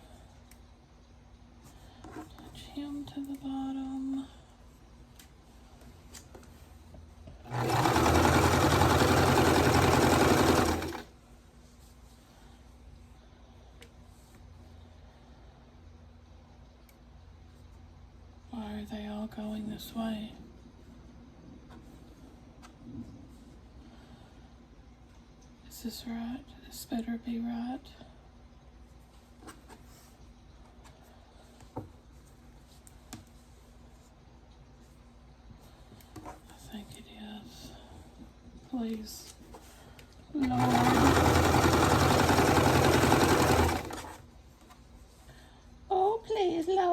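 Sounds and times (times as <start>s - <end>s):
faint steady hum: 0.0s - 46.9s
sewing machine stitching: 7.4s - 11.1s, 40.4s - 44.2s
soft taps and rustles: 29.0s - 34.2s.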